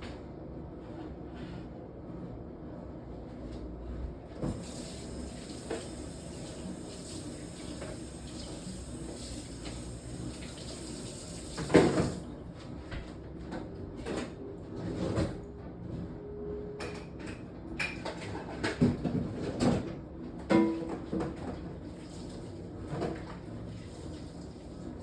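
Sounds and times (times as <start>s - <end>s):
tap running into sink: 4.4s - 12.2s
tap shutting off knock: 11.5s - 12.2s
kitchen clatter and knocks: 16.9s - 21.6s.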